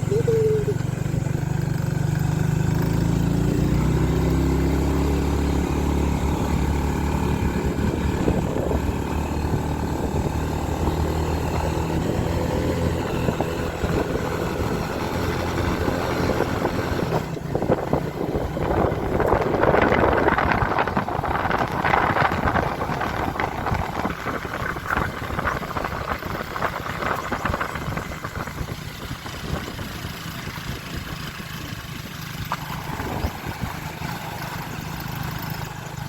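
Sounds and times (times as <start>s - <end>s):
motorcycle engine running: 0.0s - 36.0s
wind on microphone: 5.9s - 34.5s.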